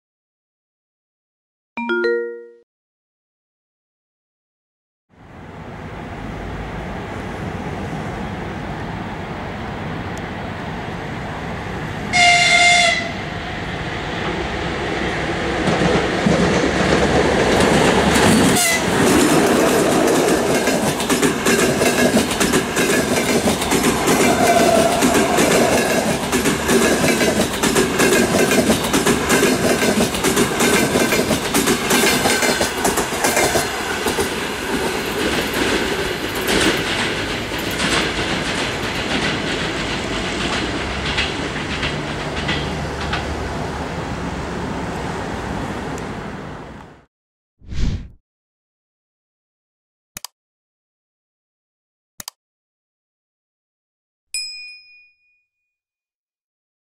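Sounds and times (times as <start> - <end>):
train horn blast: 12.1 - 13.2, 18.6 - 19.0
train wheels clattering over rails: 15.5 - 43.6.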